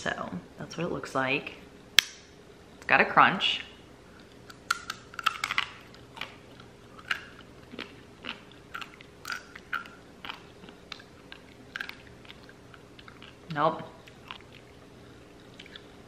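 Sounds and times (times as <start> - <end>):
person chewing crunchy food: 4.1 - 16.0.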